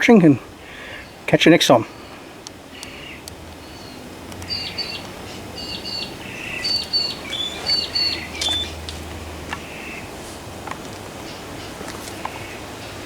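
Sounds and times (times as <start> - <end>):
bird chirping: 0.8 - 10.1.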